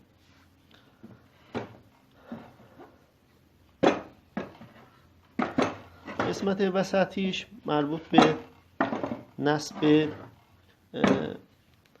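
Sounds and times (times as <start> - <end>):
metal parts knocking and clunking: 3.8 - 6.6, 8.0 - 10.3.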